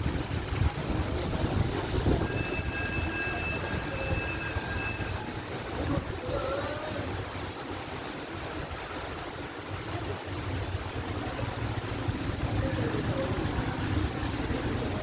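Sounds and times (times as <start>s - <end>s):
wind buffeting microphone: 0.0s - 6.6s
heavy rain pouring: 0.0s - 15.0s.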